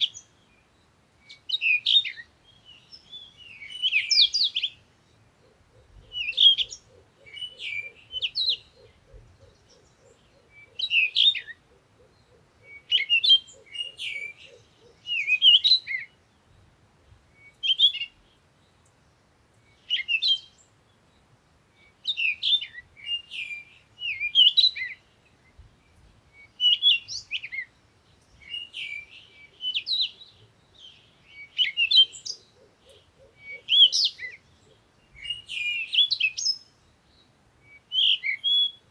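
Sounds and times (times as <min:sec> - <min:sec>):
birds chirping: 0:00.0 - 0:16.8.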